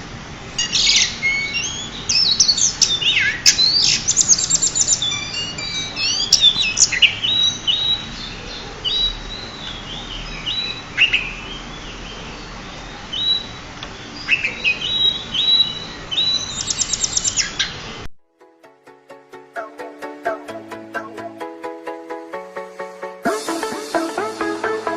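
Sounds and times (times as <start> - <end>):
bird singing whistled notes: 0.6 - 8.2, 14.3 - 17.6.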